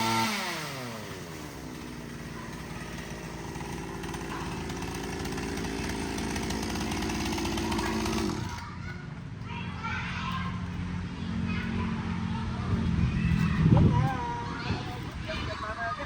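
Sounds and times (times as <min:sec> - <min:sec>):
chainsaw engine running: 0:00.0 - 0:09.2.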